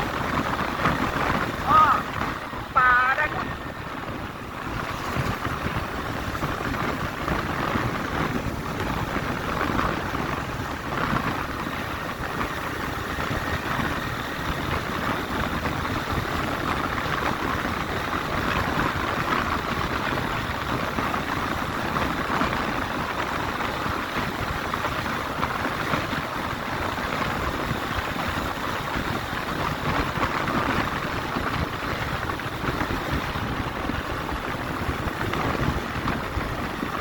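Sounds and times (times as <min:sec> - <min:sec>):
motorcycle engine: 0:00.0 - 0:37.0
wind noise: 0:00.0 - 0:37.0.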